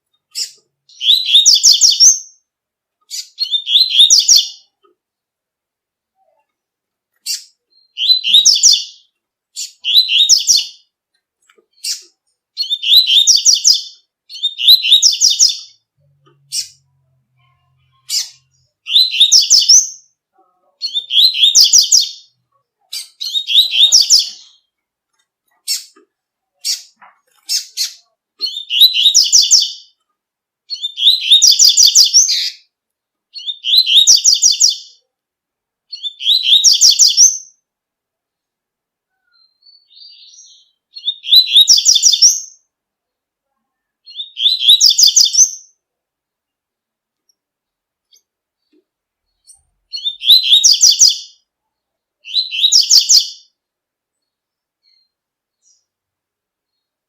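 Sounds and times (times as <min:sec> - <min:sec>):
bird singing high phrases: 0:00.2 - 0:04.8, 0:07.2 - 0:11.0, 0:11.7 - 0:24.8, 0:25.5 - 0:30.0, 0:30.7 - 0:35.1, 0:35.9 - 0:37.7, 0:39.1 - 0:42.7, 0:43.8 - 0:45.9, 0:48.0 - 0:56.0
faint bird twitter: 0:39.1 - 0:42.7, 0:48.1 - 0:53.6.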